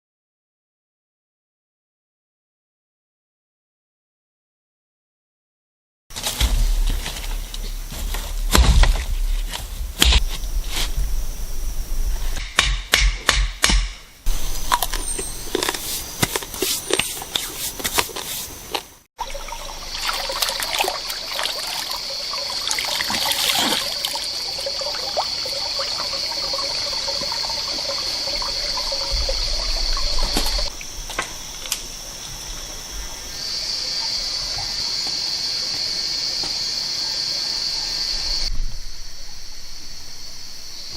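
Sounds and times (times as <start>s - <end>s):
high-pitched insect drone: 14.2s - 17.6s, 19.2s - 40.9s
water trickling: 19.2s - 31.0s.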